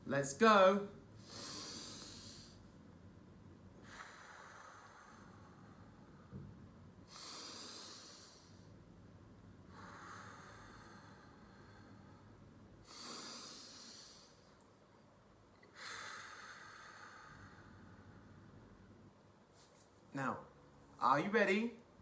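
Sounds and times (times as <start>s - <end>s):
man breathing deeply: 1.2s - 2.7s, 3.8s - 8.8s, 9.6s - 14.6s, 15.7s - 19.0s.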